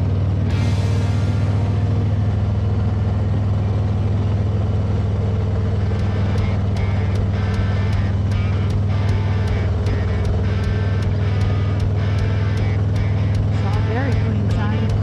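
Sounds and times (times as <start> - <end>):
motorcycle engine running: 0.0 - 15.0
regular ticking: 5.8 - 15.0.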